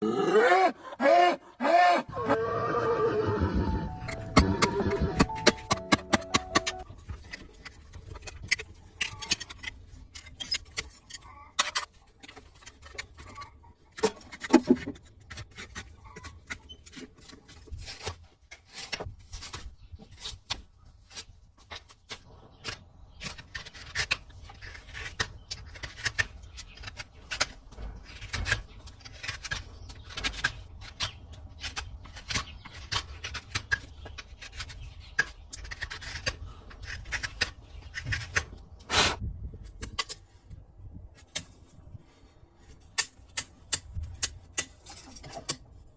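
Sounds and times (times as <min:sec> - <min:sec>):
tools scraping hoof: 0:03.2 - 0:13.4, 0:14.0 - 0:40.3.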